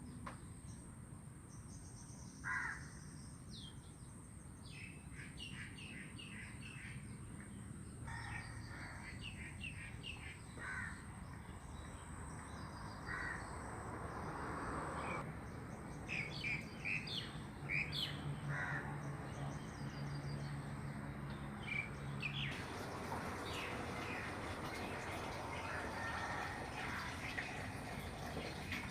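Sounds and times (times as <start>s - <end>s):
birds chirping: 9.3s - 28.9s.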